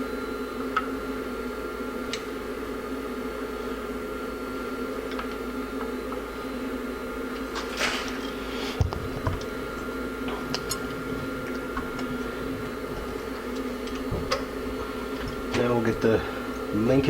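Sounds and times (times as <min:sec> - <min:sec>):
steady hum: 0:00.0 - 0:17.0
parts scraping rustles: 0:07.3 - 0:17.0.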